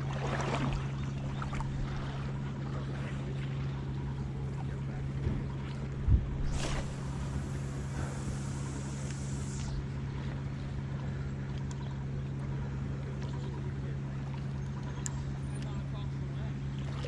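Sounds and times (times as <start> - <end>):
boat engine drone: 0.0 - 17.0
high hiss: 6.5 - 9.8.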